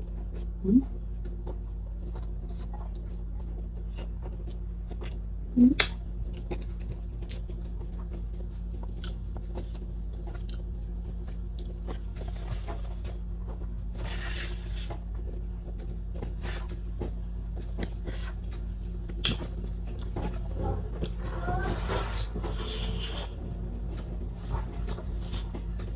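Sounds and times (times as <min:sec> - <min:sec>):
low hum: 0:00.0 - 0:25.9
wet mouth clicks and smacks: 0:19.2 - 0:19.5.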